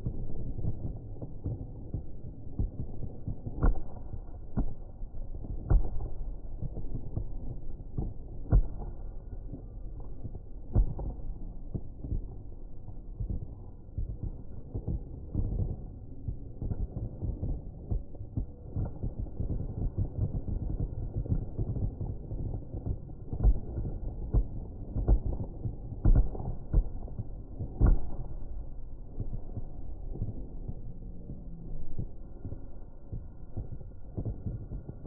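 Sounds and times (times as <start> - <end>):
fireworks booming: 0.0 - 35.0
loud fireworks bangs: 0.0 - 35.0.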